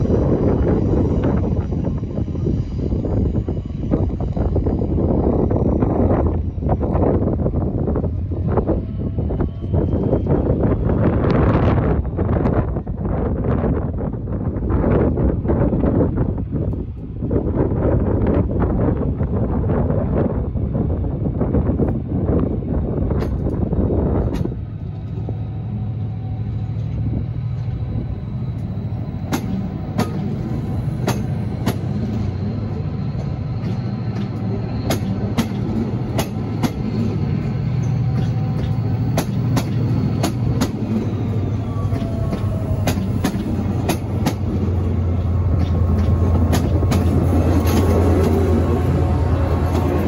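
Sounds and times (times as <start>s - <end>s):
locomotive engine hum: 0.0s - 50.0s
train coaches rumbling: 0.0s - 50.0s
wheels clicking over rail joints: 41.7s - 48.6s.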